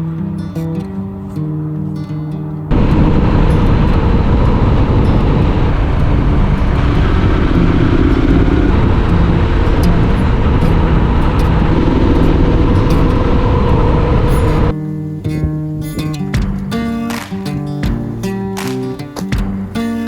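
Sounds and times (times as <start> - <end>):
motorcycle engine running: 2.7 - 14.7
wind rush on microphone: 2.7 - 14.8.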